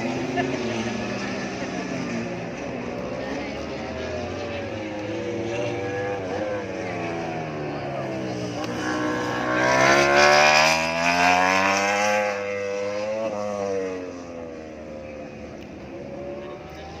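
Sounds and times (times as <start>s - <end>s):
race motorcycles passing at high revs: 0.0s - 17.0s.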